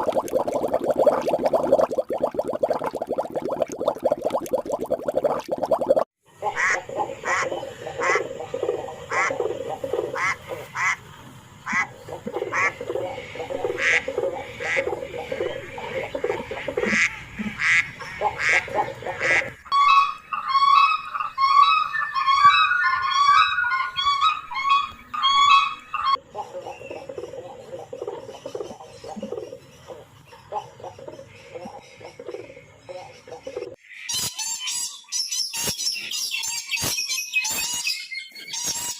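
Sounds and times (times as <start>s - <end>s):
ducks quacking: 15.8s - 19.6s.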